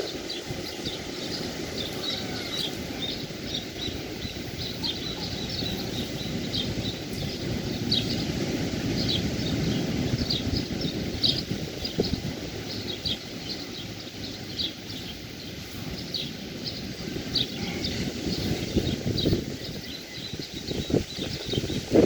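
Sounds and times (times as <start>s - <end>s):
sea surf: 0.0s - 20.7s
birds chirping: 0.0s - 22.0s.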